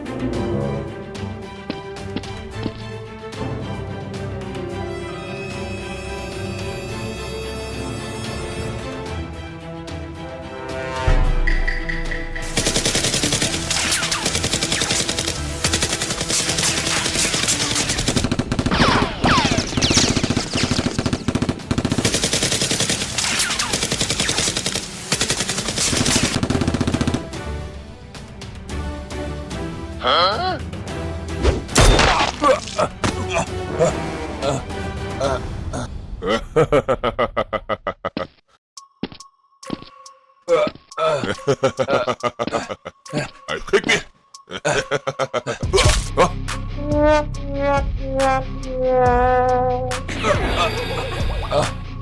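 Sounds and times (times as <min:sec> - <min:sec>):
dramatic soundtrack music: 0:00.0 - 0:37.0, 0:38.8 - 0:52.0
falling whistling sweeps: 0:11.3 - 0:12.6.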